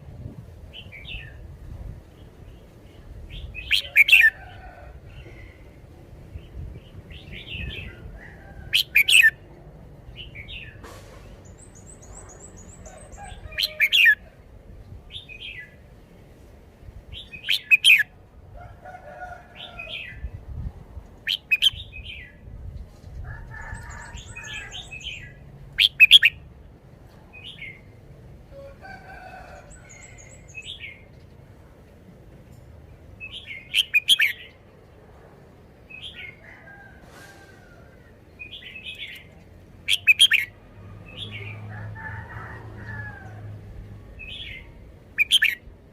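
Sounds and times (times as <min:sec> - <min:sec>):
high rapid bird trill: 0:21.2 - 0:21.8, 0:39.9 - 0:40.5.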